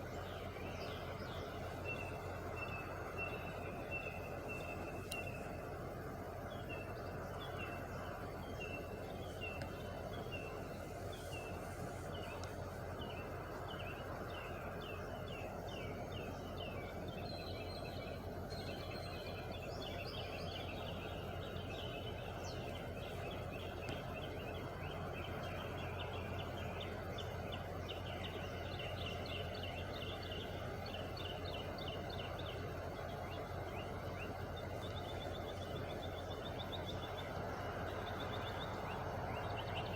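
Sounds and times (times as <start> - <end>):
birds chirping: 0.0 - 39.9
truck engine idling: 0.0 - 39.9.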